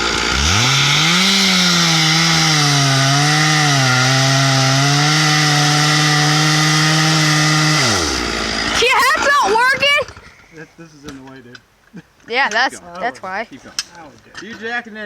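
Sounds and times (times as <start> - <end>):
chainsaw cutting tree: 0.0 - 10.3.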